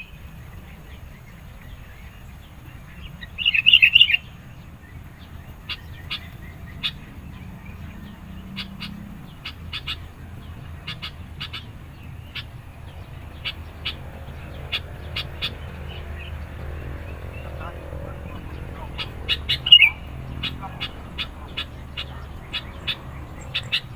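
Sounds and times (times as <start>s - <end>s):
steady low hum: 0.0s - 23.9s
bulbul calling in sharp chips: 17.4s - 23.9s.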